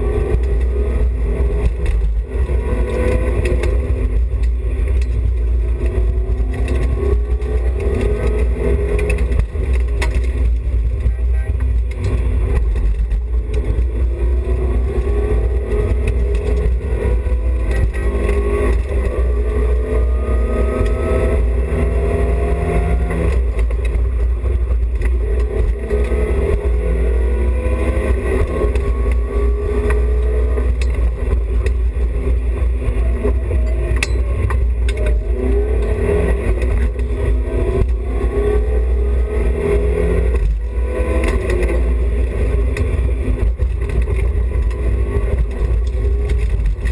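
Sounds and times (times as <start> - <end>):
car engine accelerating hard: 0.0 - 46.9
low drone inside car: 0.0 - 46.9.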